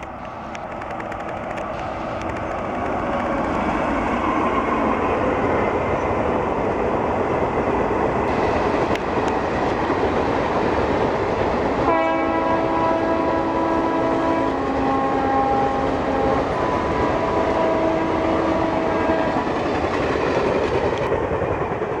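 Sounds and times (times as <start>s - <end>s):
train rushing past at high speed: 0.0s - 22.0s
locomotive horn blast: 11.8s - 19.5s.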